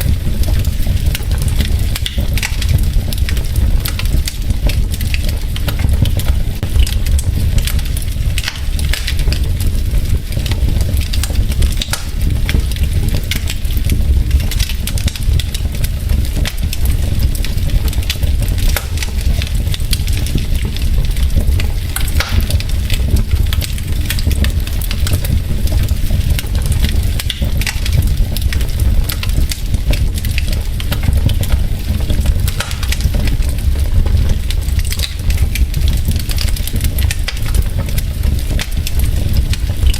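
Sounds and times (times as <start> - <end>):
logs crackling and popping: 0.0 - 39.9
low rumble of flames: 0.0 - 39.9.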